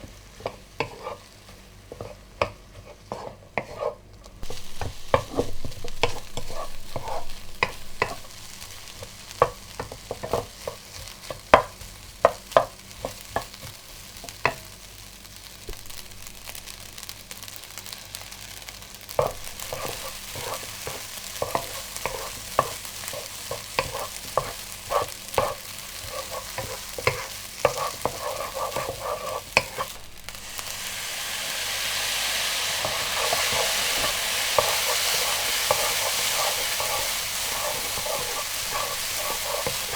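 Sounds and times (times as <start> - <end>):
food sizzling in a pan: 0.0 - 39.9
metal utensil scraping a pan: 0.8 - 1.3, 5.2 - 8.3, 19.2 - 30.0, 32.8 - 39.9.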